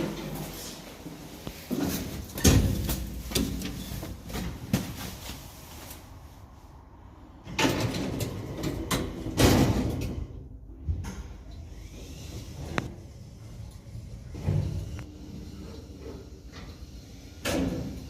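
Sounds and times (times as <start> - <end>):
sliding door rolling and clunking: 7.4 - 18.0.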